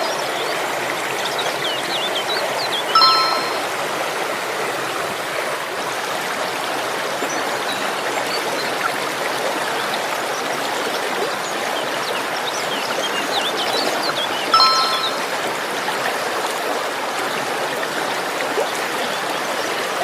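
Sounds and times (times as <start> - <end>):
stream flowing: 0.0 - 20.0
short high chirps: 3.0 - 3.8, 14.6 - 15.4.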